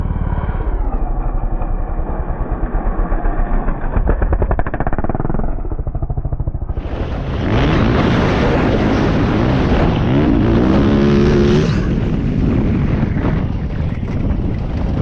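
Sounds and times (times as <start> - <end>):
loud rushing noise: 6.7 - 14.1
motocross engine revving: 6.8 - 13.2.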